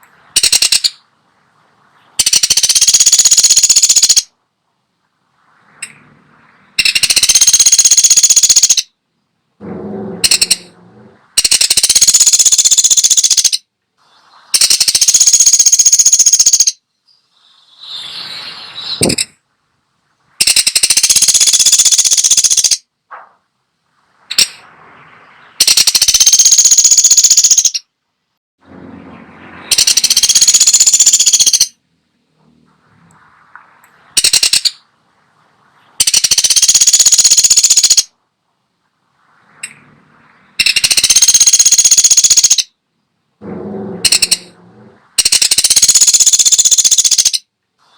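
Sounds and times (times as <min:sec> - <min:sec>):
woodpecker rattling calls: 0:00.4 - 0:01.0, 0:02.2 - 0:04.3, 0:06.8 - 0:08.9, 0:10.2 - 0:10.7, 0:11.4 - 0:13.7, 0:14.6 - 0:18.2, 0:18.8 - 0:19.4, 0:20.4 - 0:22.9, 0:24.3 - 0:24.6, 0:25.4 - 0:27.9, 0:29.7 - 0:31.8, 0:34.2 - 0:34.8, 0:36.0 - 0:38.1, 0:40.6 - 0:42.7, 0:44.0 - 0:44.5, 0:45.2 - 0:47.5
woodpecker single calls: 0:00.4 - 0:01.0, 0:02.2 - 0:04.3, 0:06.8 - 0:08.9, 0:11.4 - 0:13.7, 0:14.6 - 0:16.8, 0:17.4 - 0:19.4, 0:20.4 - 0:22.8, 0:25.6 - 0:27.9, 0:29.7 - 0:31.8, 0:34.2 - 0:34.8, 0:36.0 - 0:38.1, 0:40.6 - 0:42.7, 0:45.2 - 0:47.5.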